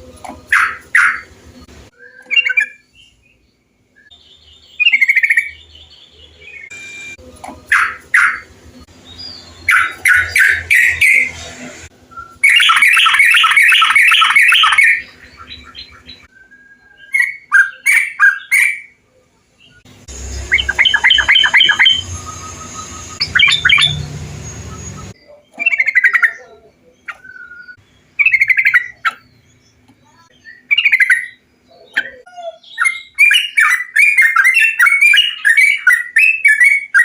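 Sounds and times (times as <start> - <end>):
bulbuls bubbly chirps: 20.2 - 26.4.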